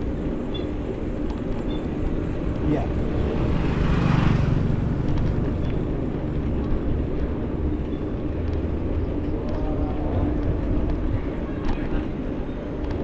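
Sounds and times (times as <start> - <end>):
wind and road noise rumble: 0.0 - 13.0.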